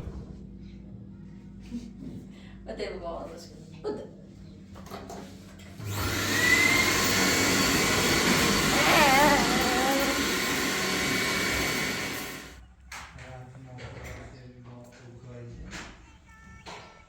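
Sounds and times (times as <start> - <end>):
electric machine running: 5.8 - 12.6.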